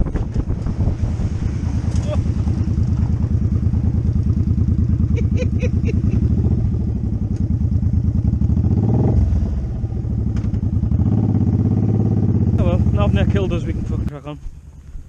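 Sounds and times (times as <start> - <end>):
motorcycle engine idling: 1.6 - 15.0.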